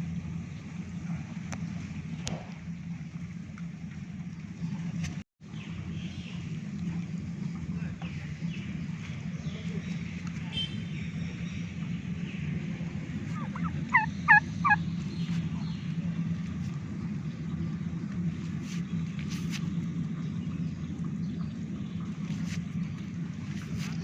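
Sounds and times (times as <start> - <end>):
steady low hum: 0.0 - 24.0
turkey calling: 13.2 - 15.7.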